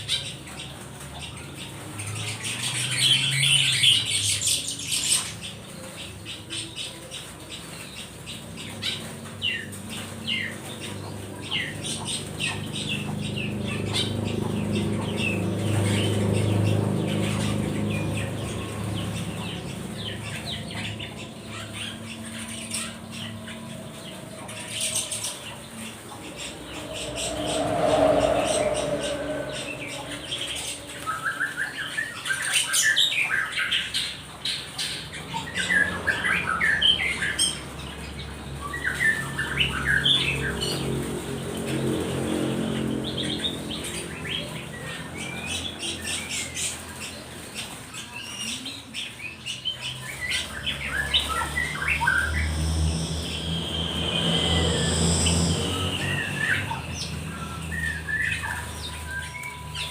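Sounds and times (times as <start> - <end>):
songbirds chirping and squawking: 0.0 - 59.9
low hum: 13.0 - 31.8.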